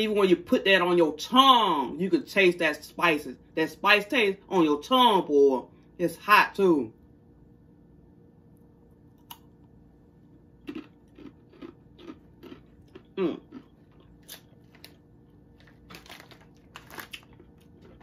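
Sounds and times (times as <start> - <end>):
crunching tortilla chips: 10.5 - 18.0
person humming: 13.2 - 13.4.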